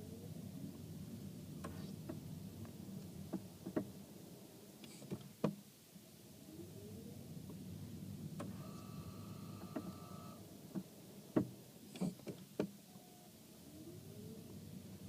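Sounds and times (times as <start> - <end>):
steady low hum: 0.0 - 4.9, 6.0 - 12.0.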